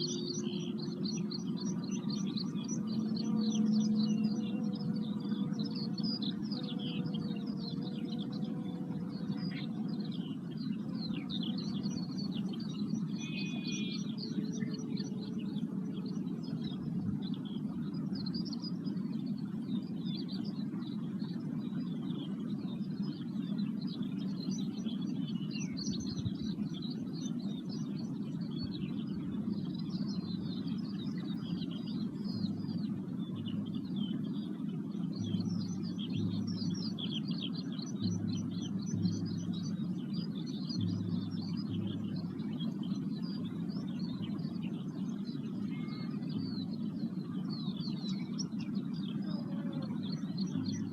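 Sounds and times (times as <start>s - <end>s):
faint ringing tone: 0.0s - 23.5s
birds singing and chirping: 0.0s - 50.9s
low rumble: 38.0s - 44.4s.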